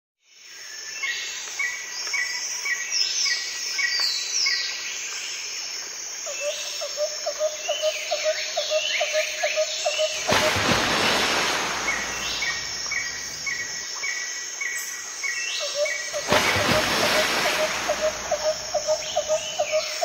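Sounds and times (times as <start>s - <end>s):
birds chirping: 10.0s - 13.8s, 15.8s - 20.0s.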